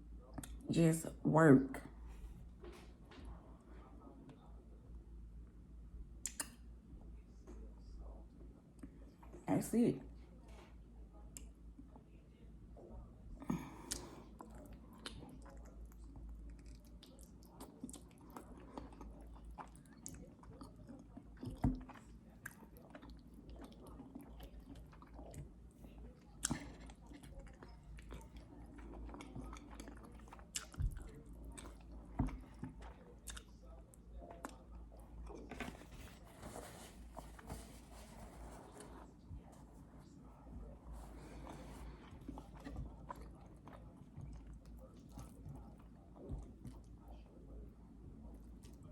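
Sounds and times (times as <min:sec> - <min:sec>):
chewing with lip smacks: 0:06.2 - 0:06.6, 0:13.6 - 0:35.9, 0:38.6 - 0:47.3, 0:48.2 - 0:48.9.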